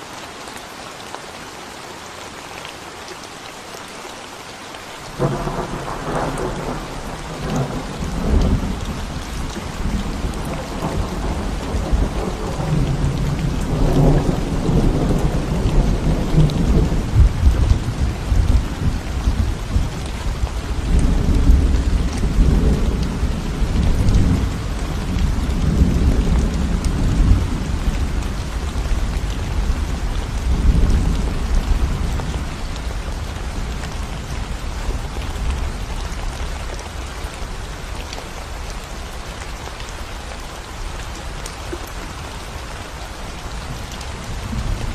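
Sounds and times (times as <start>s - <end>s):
rain on concrete: 0.0s - 44.9s
thunder rumbling: 5.1s - 32.7s.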